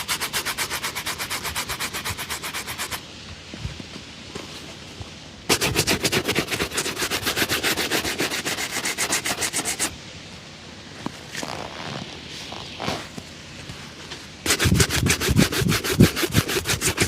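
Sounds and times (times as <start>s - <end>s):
brush scrubbing leather shoe: 0.0s - 3.0s, 5.5s - 9.9s, 14.4s - 17.0s
soft rubbing: 0.0s - 9.9s, 10.9s - 17.0s.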